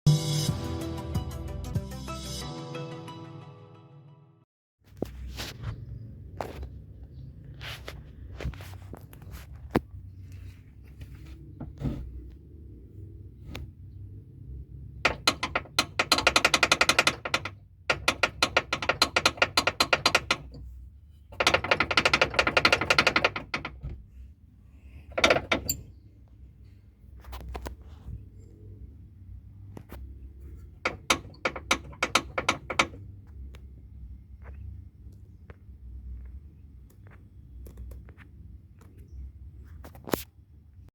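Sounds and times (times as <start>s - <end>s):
low road rumble: 4.9s - 39.7s
rapid knocking under car: 15.0s - 20.6s, 21.3s - 24.0s, 30.8s - 33.0s.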